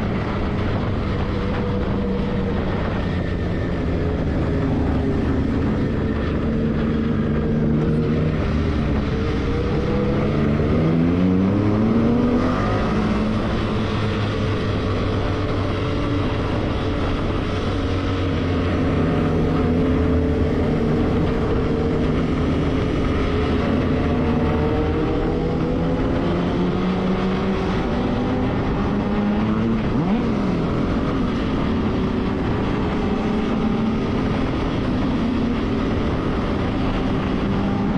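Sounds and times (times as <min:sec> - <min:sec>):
motorcycle engine accelerating: 0:00.0 - 0:37.9
wind and road noise: 0:00.0 - 0:37.9.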